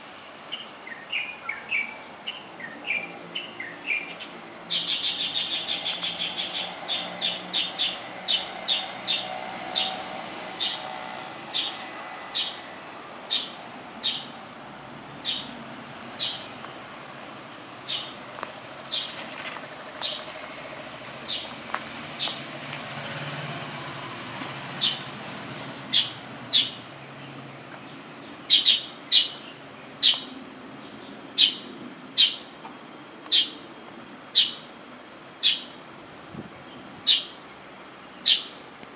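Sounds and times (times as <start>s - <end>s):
songbird chirping: 0.5s - 14.4s, 15.2s - 23.4s, 24.8s - 25.2s, 25.8s - 33.6s, 35.4s - 38.9s
steady background hiss: 25.0s - 38.9s.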